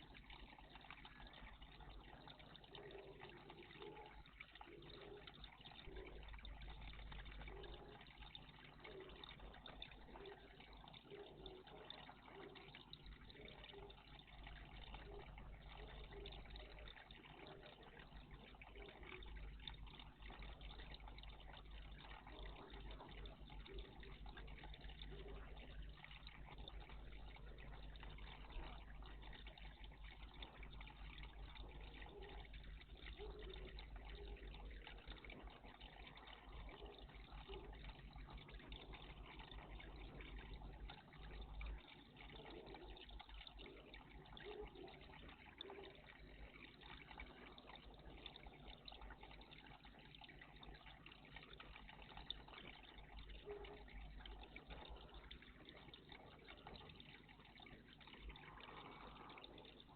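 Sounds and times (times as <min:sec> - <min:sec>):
water trickling: 0:00.0 - 0:59.9.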